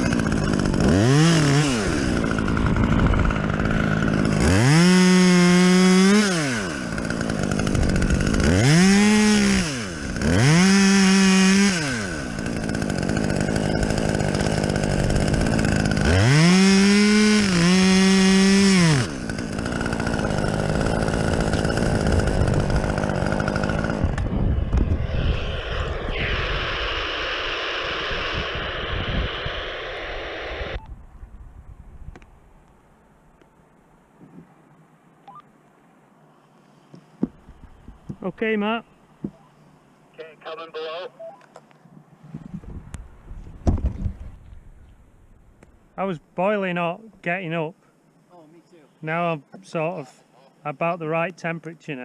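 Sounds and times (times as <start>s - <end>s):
chainsaw idling and revving: 0.0s - 24.7s.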